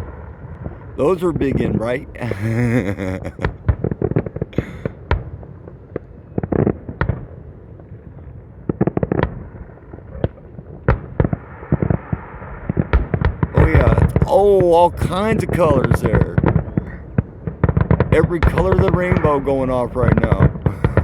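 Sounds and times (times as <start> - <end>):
fireworks bangs and pops: 2.2 - 5.4, 10.2 - 21.0.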